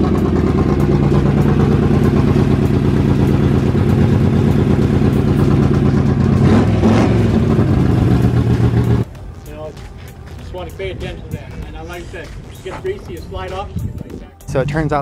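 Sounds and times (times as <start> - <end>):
race car engine idling loudly: 0.0 - 9.0.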